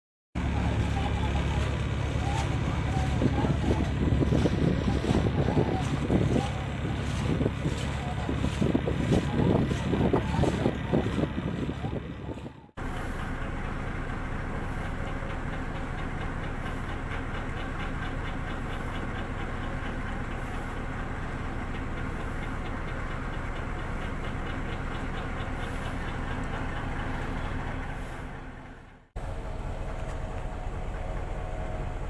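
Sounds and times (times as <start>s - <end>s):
boat engine running: 0.4s - 32.0s
fast mechanical ticking: 12.8s - 28.1s.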